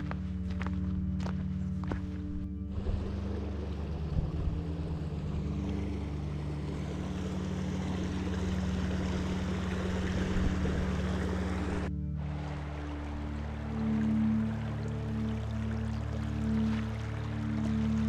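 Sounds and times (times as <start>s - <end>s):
low music drone: 0.0s - 18.0s.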